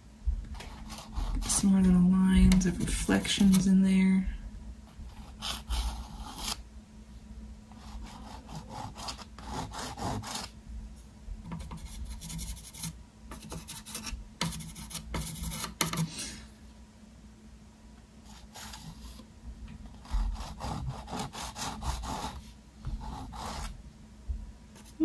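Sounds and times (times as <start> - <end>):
painting tool scraping canvas: 0.6 - 1.7, 7.7 - 10.5, 20.0 - 23.7.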